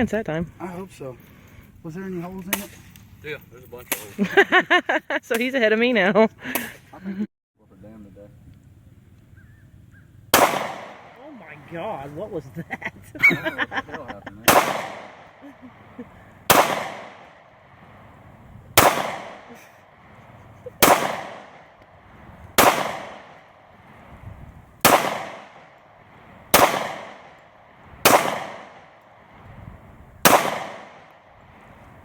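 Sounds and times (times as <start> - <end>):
gunshots with ringing tail: 10.3 - 12.1, 14.4 - 24.2, 24.8 - 29.5, 30.2 - 32.0.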